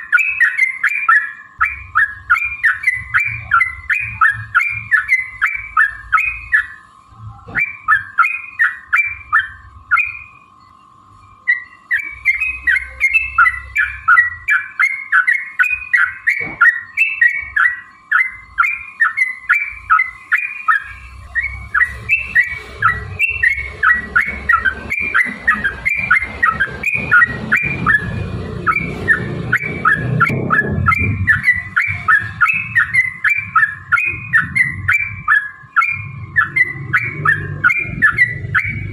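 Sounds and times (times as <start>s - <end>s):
bird singing bubbling chirps: 0.0s - 38.9s
low rumbling noise: 20.9s - 38.9s.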